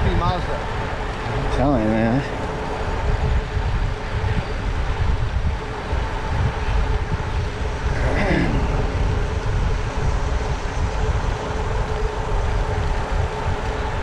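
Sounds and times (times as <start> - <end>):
wind rushing over microphone: 0.0 - 14.0
motor vehicle passing: 6.9 - 13.7.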